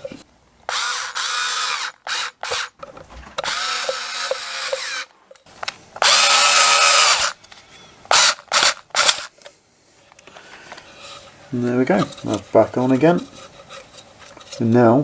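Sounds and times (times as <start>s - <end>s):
power drill driving screws: 0.7s - 2.8s, 3.4s - 5.1s, 6.0s - 7.4s, 8.1s - 9.3s.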